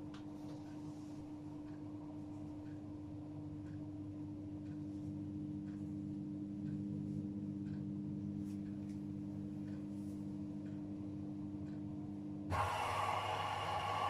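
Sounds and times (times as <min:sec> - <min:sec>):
washing machine humming: 0:00.0 - 0:14.0
faint regular ticking: 0:01.4 - 0:12.4.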